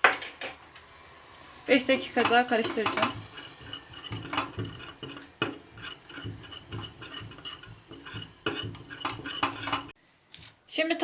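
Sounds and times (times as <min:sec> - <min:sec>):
utensil scraping pudding pot: 0:01.4 - 0:10.0.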